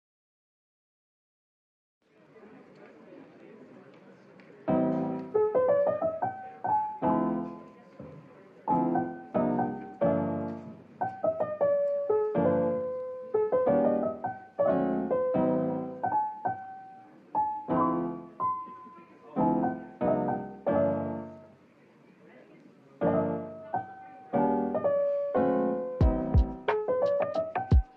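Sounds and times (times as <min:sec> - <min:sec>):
slow gentle solo piano: 0:04.7 - 0:21.6, 0:23.0 - 0:27.9.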